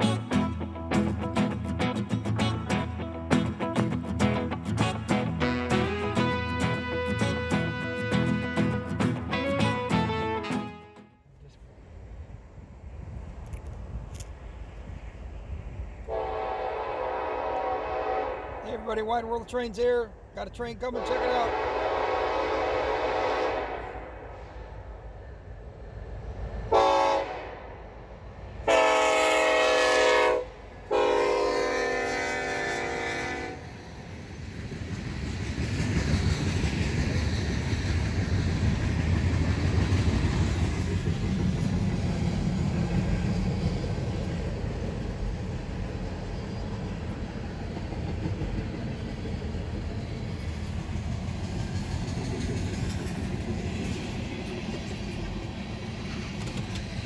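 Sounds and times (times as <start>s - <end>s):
locomotive horn blasts: 4.8s - 11.2s, 16.1s - 18.7s, 20.9s - 24.1s, 26.7s - 27.7s, 28.7s - 33.7s
locomotives rumbling past: 11.5s - 57.0s
train wheels on rails: 11.9s - 57.0s.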